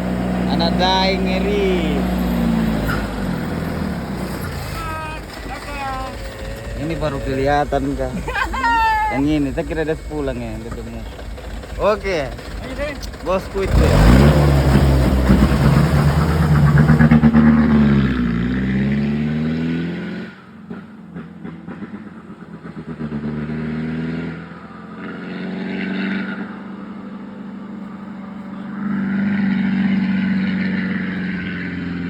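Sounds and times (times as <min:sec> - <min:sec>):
diesel truck engine under load: 0:00.0 - 0:32.0.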